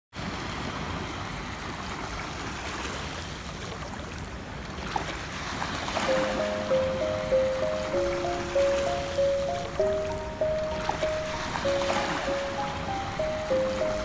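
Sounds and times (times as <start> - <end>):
ocean waves on a beach: 0.2 - 14.0
soft music with held notes: 6.0 - 14.0.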